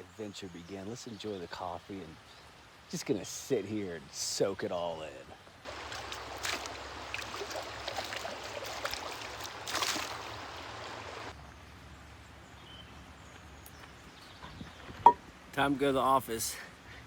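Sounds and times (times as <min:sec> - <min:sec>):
mountain creek running: 0:00.0 - 0:11.4.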